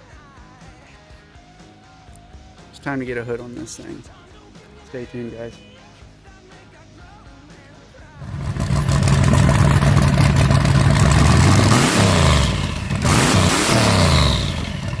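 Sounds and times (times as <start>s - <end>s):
car engine running hard: 8.2s - 15.0s.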